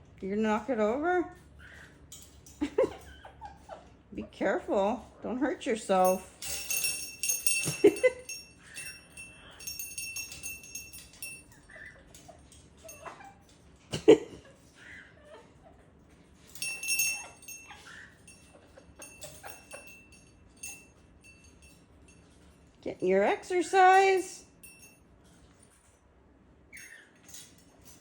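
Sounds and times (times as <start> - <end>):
small bell jingling: 6.0 - 13.4, 16.4 - 22.7, 23.4 - 25.7, 26.7 - 28.0.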